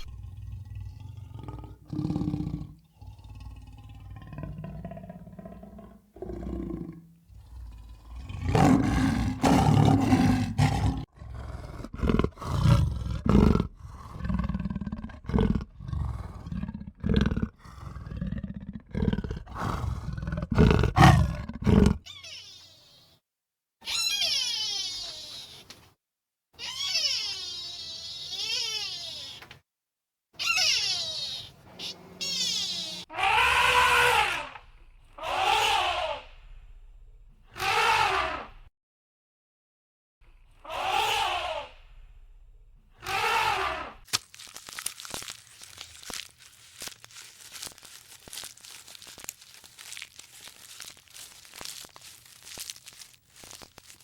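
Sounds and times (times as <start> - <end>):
high-pitched wavering animal cries: 22.0 - 23.2, 23.8 - 25.7, 26.6 - 29.5, 30.4 - 34.6, 35.2 - 36.2, 40.7 - 41.7
loud low animal calls: 23.8 - 25.7, 26.6 - 29.5, 30.4 - 34.6, 35.2 - 36.4, 37.6 - 38.5, 40.6 - 41.8, 43.0 - 44.0.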